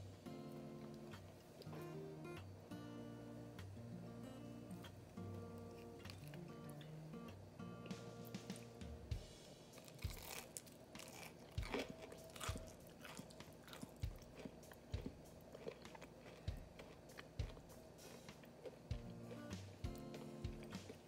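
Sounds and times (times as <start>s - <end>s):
crunchy biting and chewing: 9.8s - 21.0s.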